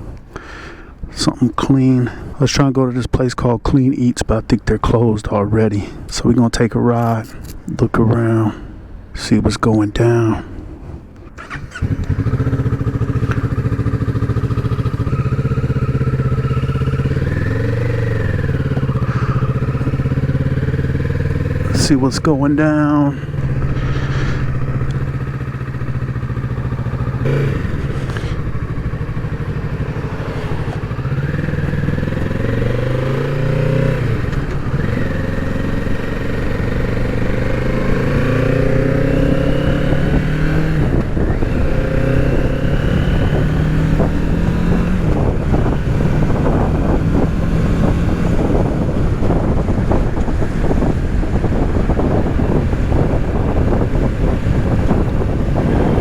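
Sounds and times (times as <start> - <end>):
wind buffeting microphone: 7.2 - 56.0
motorcycle engine accelerating: 11.2 - 56.0.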